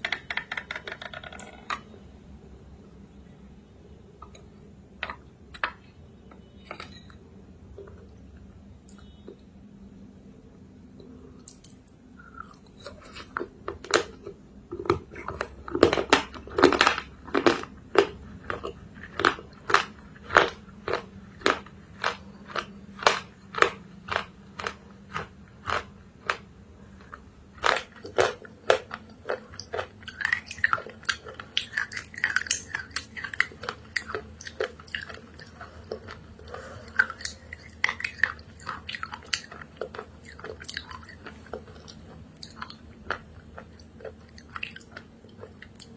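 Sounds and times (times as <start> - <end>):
person chewing crunchy clay: 7.6 - 9.5, 11.0 - 45.9.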